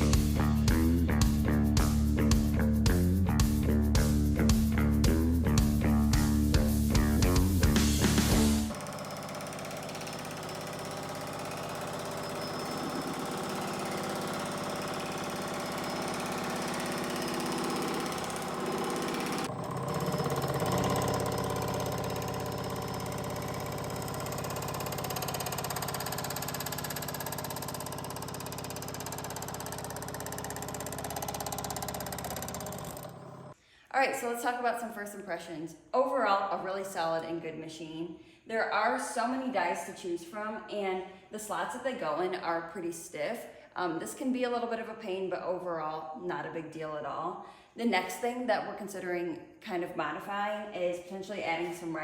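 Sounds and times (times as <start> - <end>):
power hammer hammering: 8.1 - 33.6.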